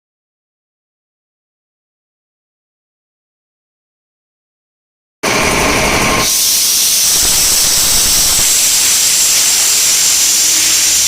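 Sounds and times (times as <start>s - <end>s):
compressed air hissing: 6.2s - 11.0s.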